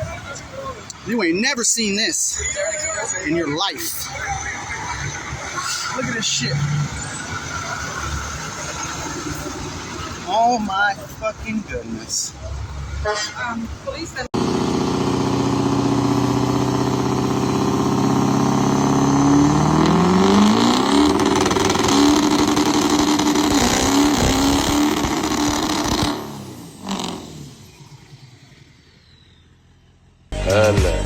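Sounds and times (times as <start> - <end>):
vehicle engine accelerating: 14.2 - 31.0.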